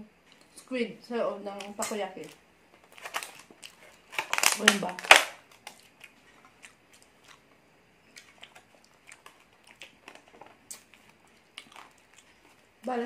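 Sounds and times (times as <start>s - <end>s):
person chewing wetly: 2.8s - 4.4s, 5.4s - 12.8s.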